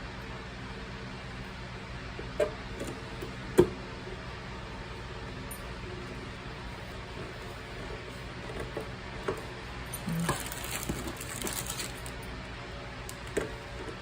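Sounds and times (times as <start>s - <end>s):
steady low hum: 0.0s - 14.0s
crackling and rustling: 10.0s - 12.2s.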